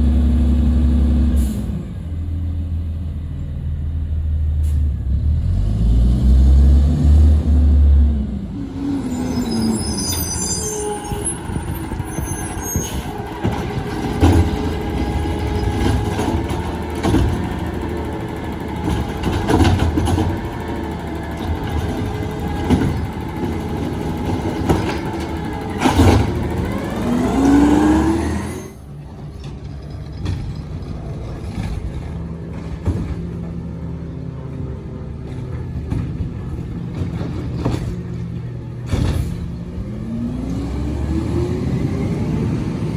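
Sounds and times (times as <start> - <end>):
garbage truck diesel engine: 0.0 - 42.9
knocks and clanks: 12.8 - 33.7, 35.2 - 39.9.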